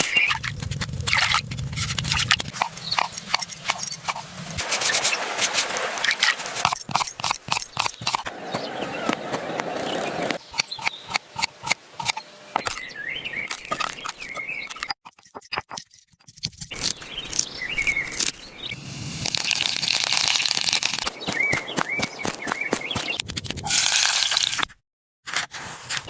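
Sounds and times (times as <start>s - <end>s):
birds chirping: 0.0s - 0.4s, 2.2s - 5.3s, 6.0s - 15.8s, 16.7s - 18.9s, 20.3s - 23.3s
loud hiss: 18.7s - 21.0s.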